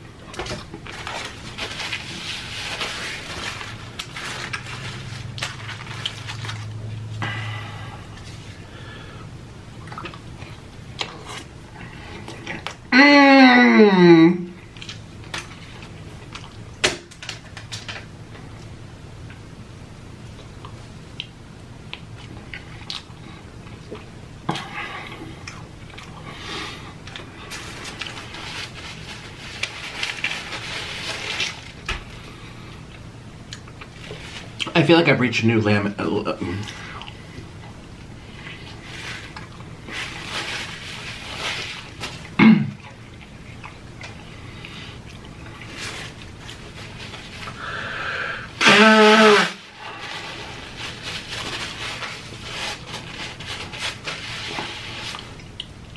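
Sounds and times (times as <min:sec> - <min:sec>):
faint eating noises: 0:00.0 - 0:49.0, 0:49.6 - 0:55.9
low steady hum: 0:00.0 - 0:55.9
person chewing food: 0:09.7 - 0:12.9, 0:20.3 - 0:34.7, 0:36.6 - 0:40.3, 0:41.2 - 0:47.6.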